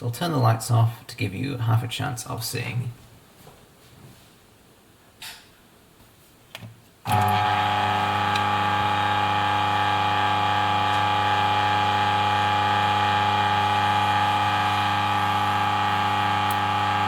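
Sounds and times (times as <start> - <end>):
coffee grinder motor humming: 7.1 - 17.0.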